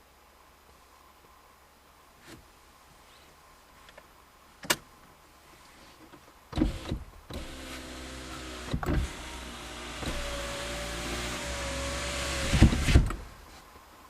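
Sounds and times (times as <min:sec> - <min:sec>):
thumps: 0:12.0 - 0:13.3.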